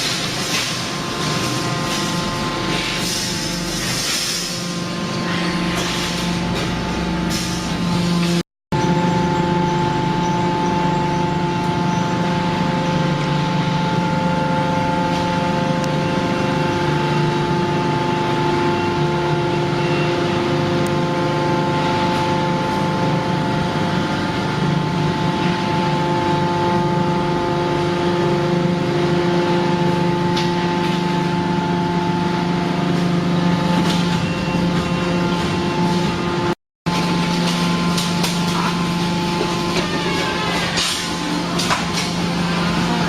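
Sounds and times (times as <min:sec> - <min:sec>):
hydraulic baler motor hum: 0:00.0 - 0:43.0.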